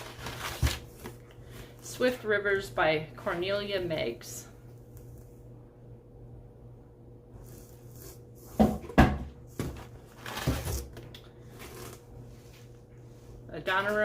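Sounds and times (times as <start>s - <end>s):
books set down with thumps: 8.5s - 11.0s.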